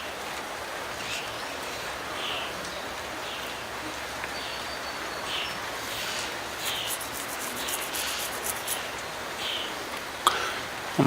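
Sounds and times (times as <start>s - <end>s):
light rain hissing: 0.0s - 11.0s
quick high ticks: 6.0s - 8.9s.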